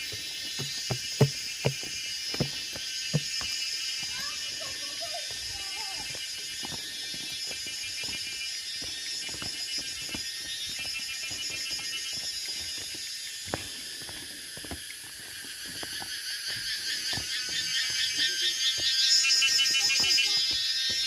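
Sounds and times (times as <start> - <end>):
soft footfalls: 0.0 - 3.6
cicadas chorus: 0.0 - 21.0.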